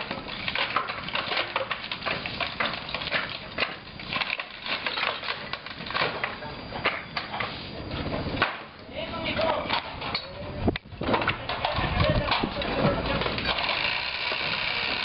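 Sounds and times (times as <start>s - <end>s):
wood cracking and splintering: 0.0s - 7.4s, 11.0s - 15.0s.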